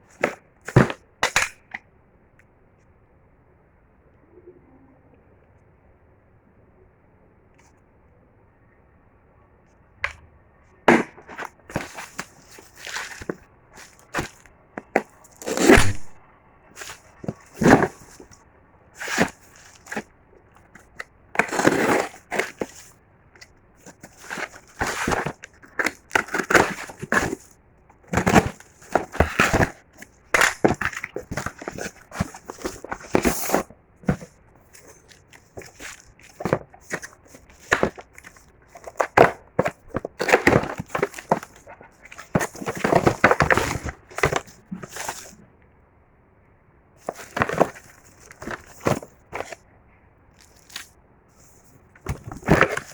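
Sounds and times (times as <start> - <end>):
packaging crinkling and tearing: 10.9 - 16.2, 16.8 - 18.4, 19.0 - 20.1, 20.8 - 23.0, 23.8 - 45.3.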